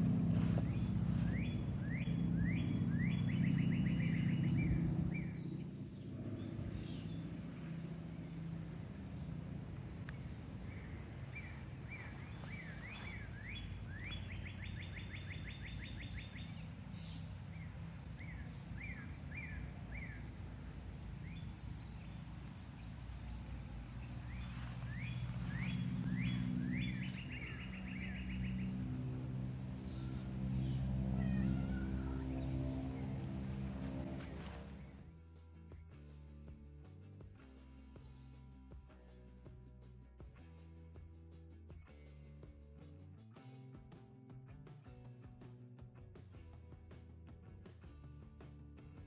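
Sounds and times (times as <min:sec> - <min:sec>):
songbird chirping and trilling: 0:00.0 - 0:09.4, 0:10.0 - 0:35.0
steady low rumble: 0:00.0 - 0:41.7.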